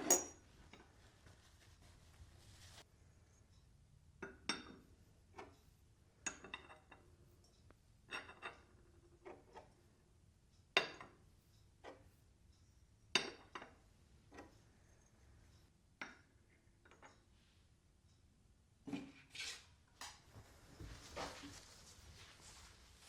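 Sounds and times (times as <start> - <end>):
dishes and glassware clinking: 0.0 - 0.8, 8.1 - 8.7.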